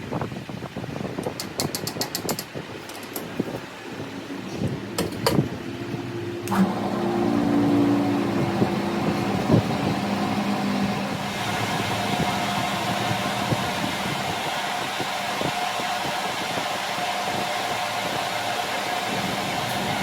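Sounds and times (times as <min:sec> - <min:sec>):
sharp metallic clicks: 0:01.3 - 0:03.3
machine motor humming: 0:04.9 - 0:20.0.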